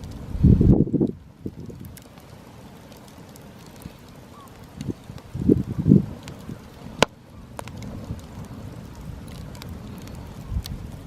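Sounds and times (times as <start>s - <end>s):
wind gust on microphone: 0.0s - 2.0s, 4.6s - 11.0s
fire popping: 0.0s - 11.0s
wood fire crackling: 0.0s - 11.0s.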